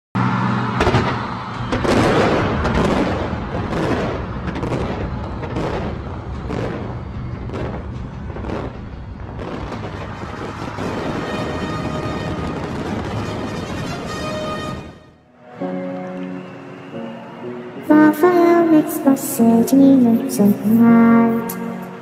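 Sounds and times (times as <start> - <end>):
fireworks booms and bangs: 0.7 - 15.0.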